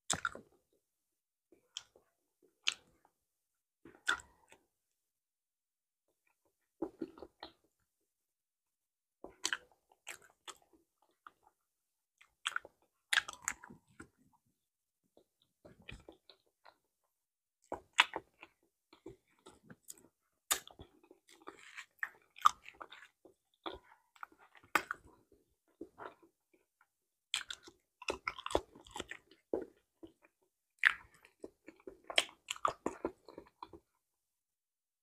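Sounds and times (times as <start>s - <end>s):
person chewing banana: 0.1s - 0.6s, 1.6s - 3.1s, 3.9s - 4.7s, 6.2s - 7.8s, 9.2s - 11.6s, 12.2s - 14.2s, 15.2s - 16.8s, 17.6s - 34.0s.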